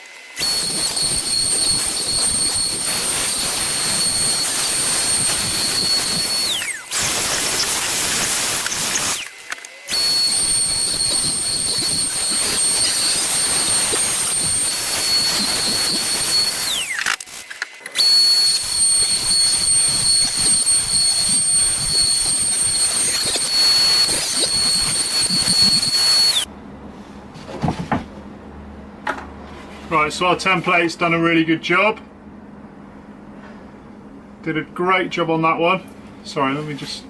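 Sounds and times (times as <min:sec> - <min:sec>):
router whining and cutting wood: 0:00.0 - 0:26.5
router spinning down: 0:00.4 - 0:26.5.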